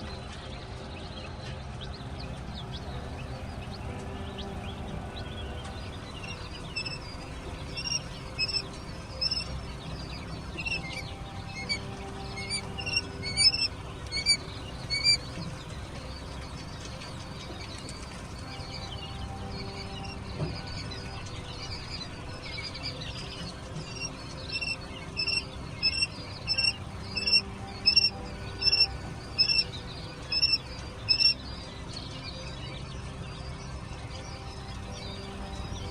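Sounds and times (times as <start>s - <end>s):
chicks peeping: 0.0s - 35.9s
low background rumble: 0.0s - 35.9s
chick loud repeated peep: 7.7s - 9.5s, 10.5s - 15.2s, 24.0s - 29.6s, 30.3s - 31.4s.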